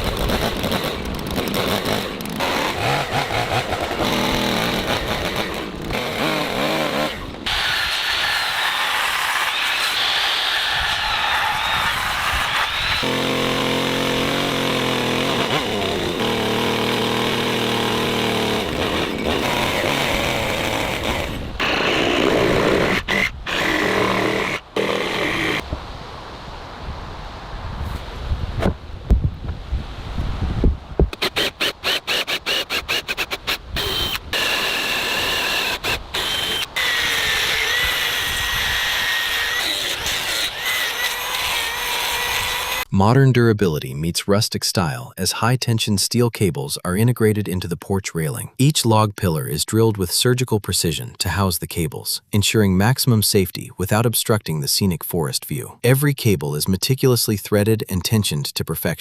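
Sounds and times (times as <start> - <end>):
chainsaw engine running: 0.0 - 25.6, 31.2 - 42.9
power drill whining into wood: 0.0 - 25.6, 31.1 - 42.9.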